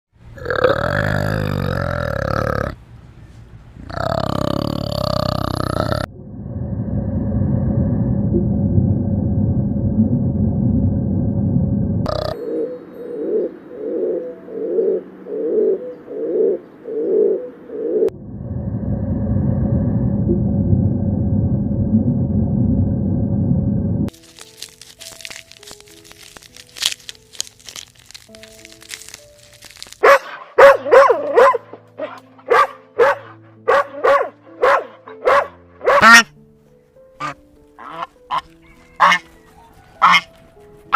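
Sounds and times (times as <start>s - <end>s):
bird cooing: 12.1s - 18.1s
animal calling: 30.1s - 36.3s, 37.2s - 40.4s.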